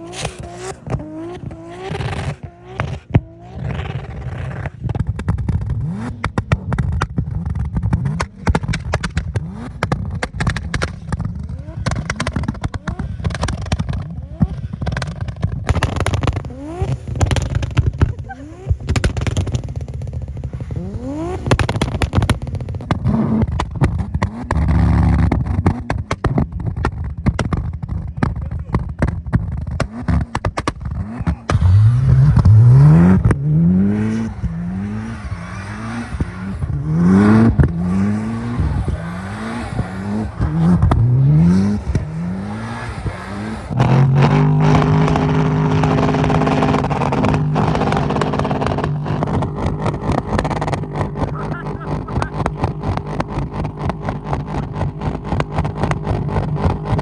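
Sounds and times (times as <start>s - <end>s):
turbocharged car engine revving: 0.0s - 57.0s
antilag pops and crackles: 4.9s - 34.6s, 43.8s - 57.0s.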